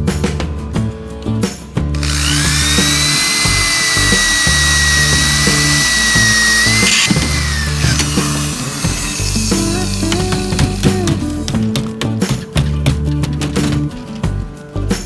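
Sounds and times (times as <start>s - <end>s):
background music with beat: 0.0s - 15.0s
power tool whining: 2.0s - 11.5s.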